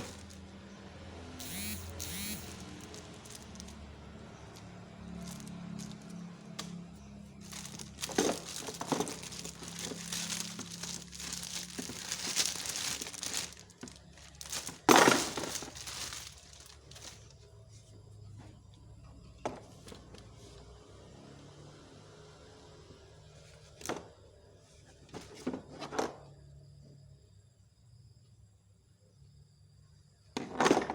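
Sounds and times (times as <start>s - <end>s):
packaging crumpling and crinkling: 0.0s - 0.4s, 1.4s - 6.3s, 7.2s - 17.3s.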